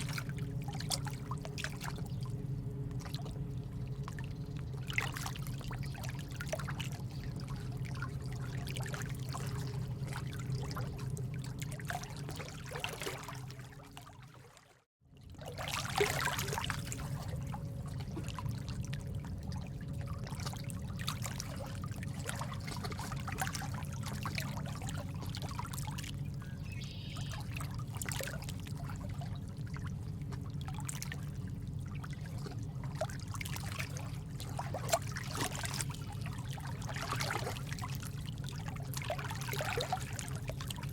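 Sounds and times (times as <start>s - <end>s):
water trickling and dripping: 0.0s - 26.5s, 27.2s - 40.9s.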